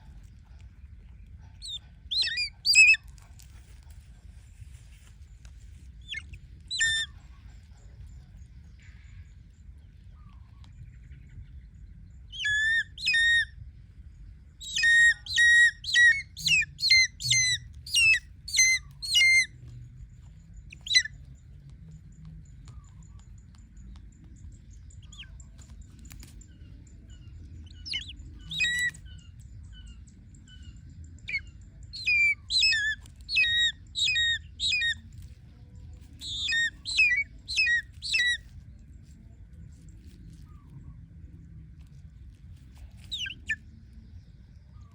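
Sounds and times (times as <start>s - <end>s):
hawk-eagle whistled calls: 1.6s - 3.0s, 6.0s - 7.1s, 12.3s - 13.6s, 14.6s - 19.6s, 20.7s - 21.2s, 27.7s - 29.2s, 31.2s - 35.0s, 36.2s - 38.4s, 43.1s - 43.6s.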